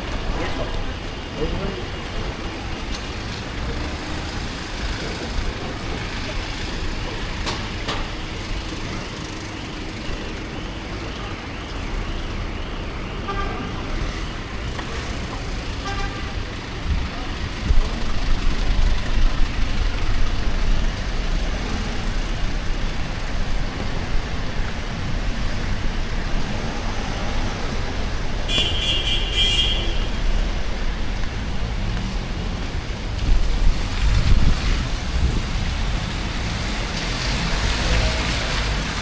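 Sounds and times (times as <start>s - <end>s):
street traffic rumble: 0.0s - 39.0s.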